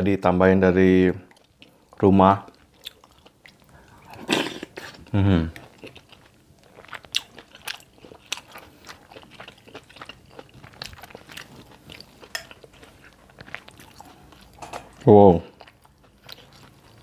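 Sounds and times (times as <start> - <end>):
chewing and biting: 1.3 - 17.0.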